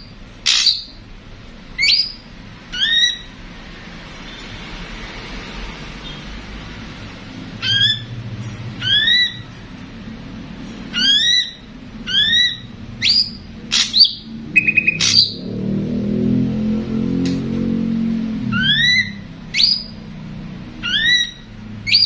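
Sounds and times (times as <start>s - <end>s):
bird whistled calls: 0.0s - 1.0s, 1.8s - 3.3s, 8.8s - 9.4s, 10.9s - 15.4s, 18.5s - 20.0s, 20.8s - 22.0s.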